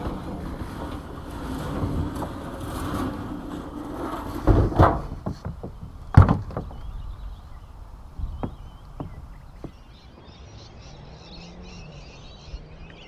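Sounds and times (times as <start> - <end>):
sharp knocks and thumps: 0.0 - 7.5, 8.1 - 9.9
wind noise: 0.0 - 10.3.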